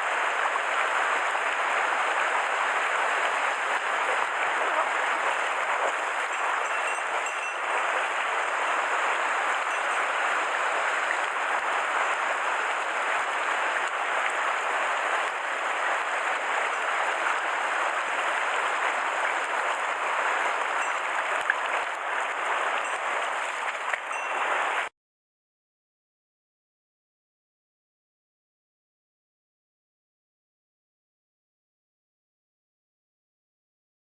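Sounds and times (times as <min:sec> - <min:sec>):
stream water rushing: 0:00.0 - 0:24.9.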